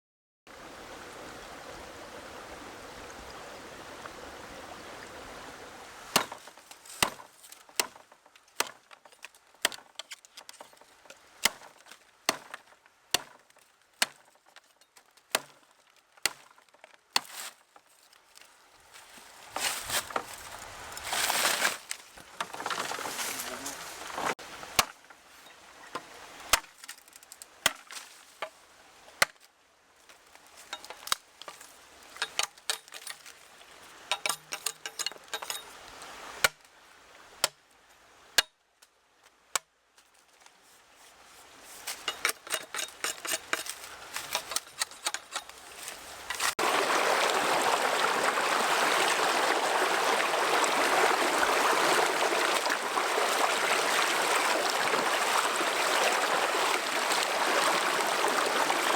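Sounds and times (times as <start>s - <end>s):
running water: 0.5s - 13.4s, 18.7s - 26.6s, 30.3s - 37.4s, 41.8s - 58.9s.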